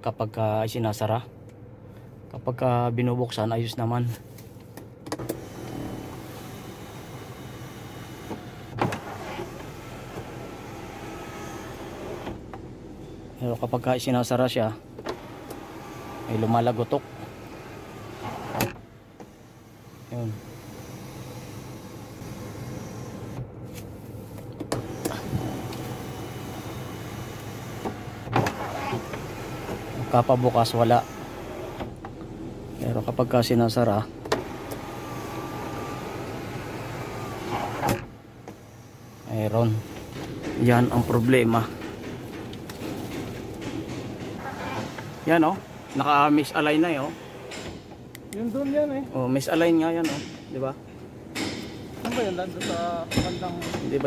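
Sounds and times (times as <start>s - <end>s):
sunroof motor running: 4.3s - 54.0s
sunroof clicks: 21.3s - 30.1s.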